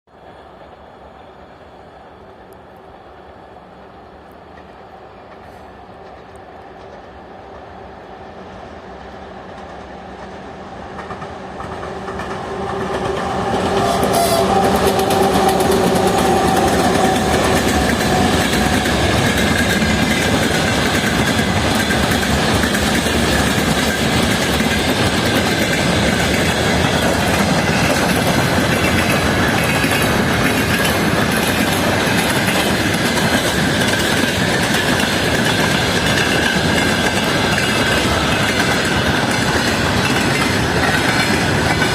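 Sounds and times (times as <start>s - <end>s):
diesel locomotive engine: 0.1s - 41.9s
freight wagon wheels clacking on rails: 9.5s - 41.9s.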